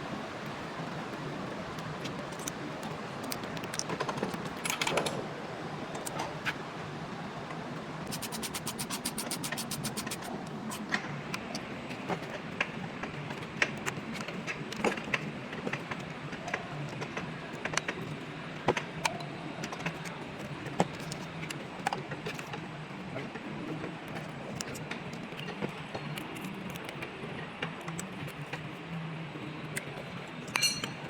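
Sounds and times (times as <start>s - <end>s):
metallic clinks of hand tools: 30.5s - 31.0s.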